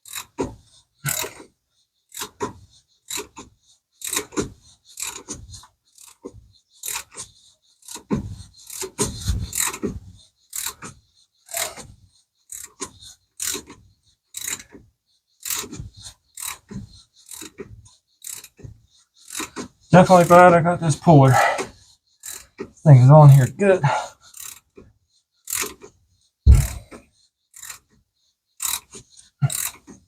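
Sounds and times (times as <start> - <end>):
ratchet wrench clicking: 0.1 - 0.3, 2.1 - 2.5, 3.1 - 3.4, 4.0 - 5.4, 6.0 - 6.2, 10.5 - 10.9, 12.5 - 14.8, 15.4 - 15.8, 16.4 - 18.6, 19.2 - 19.7, 22.2 - 22.6, 24.4 - 24.7, 25.4 - 25.9, 26.5 - 27.9, 28.6 - 29.8.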